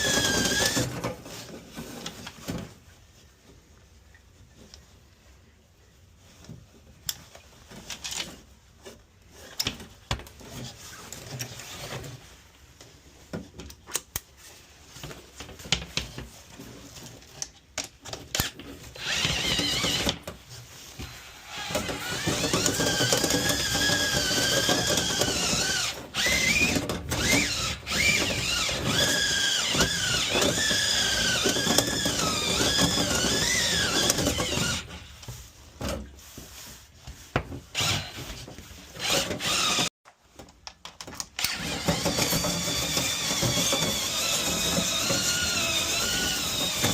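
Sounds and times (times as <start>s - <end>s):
power drill whining: 0.0s - 1.0s, 19.0s - 20.2s, 21.1s - 35.1s, 37.7s - 38.2s, 39.0s - 39.9s, 41.4s - 46.9s
rotary brush in vent duct: 18.8s - 39.7s.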